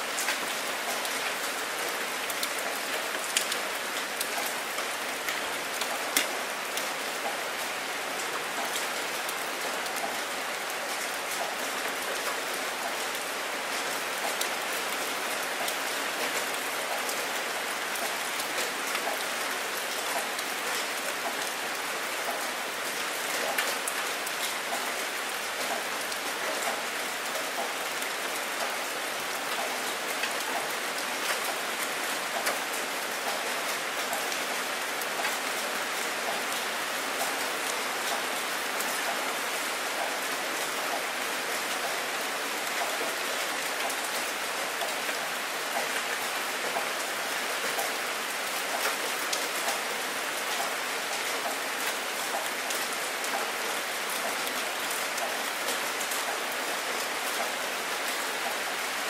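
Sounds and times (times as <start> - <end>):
rain on open water: 0.0 - 59.0.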